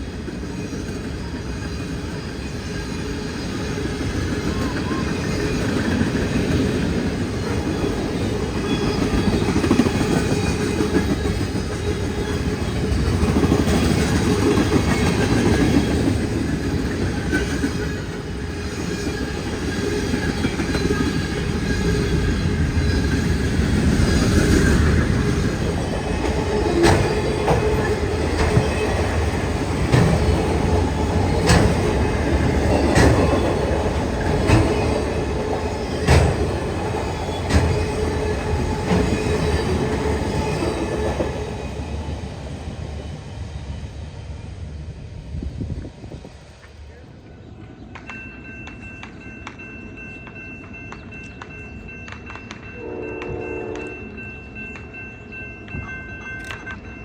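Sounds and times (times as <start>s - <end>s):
train wheels rumbling on rails: 0.0s - 57.0s
wheels clicking over rail joints: 3.8s - 41.5s.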